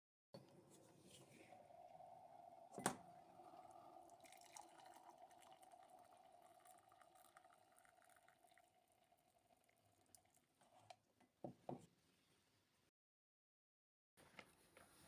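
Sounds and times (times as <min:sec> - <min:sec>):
faint steady hum: 0:00.4 - 0:10.4.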